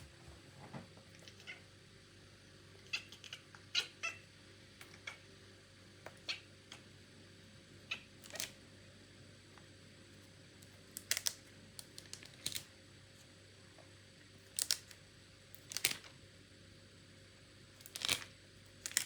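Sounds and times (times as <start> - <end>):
cat mewing: 1.2 - 1.7, 2.8 - 4.3.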